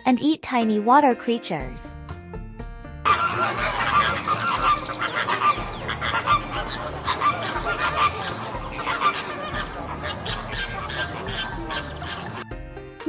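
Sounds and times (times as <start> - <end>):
flamingos honking: 3.1 - 12.5.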